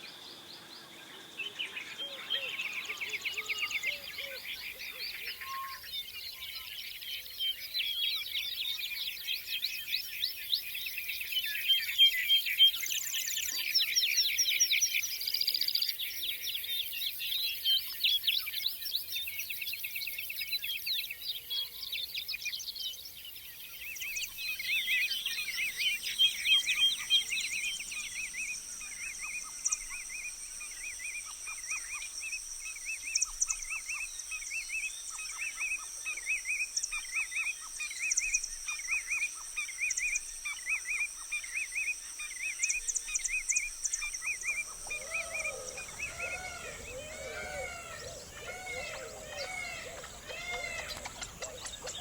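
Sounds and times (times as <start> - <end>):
songbirds chirping and trilling: 0.0 - 38.6, 41.4 - 52.0
high insect drone: 43.5 - 52.0.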